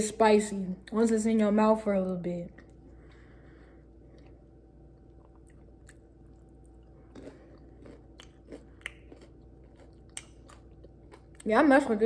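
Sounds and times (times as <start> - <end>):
faint chewing with mouth clicks: 2.5 - 11.5.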